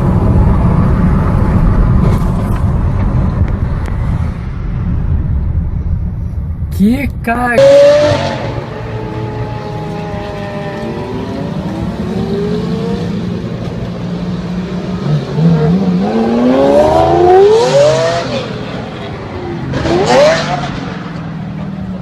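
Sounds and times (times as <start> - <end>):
car engine revving and passing: 7.6 - 22.0.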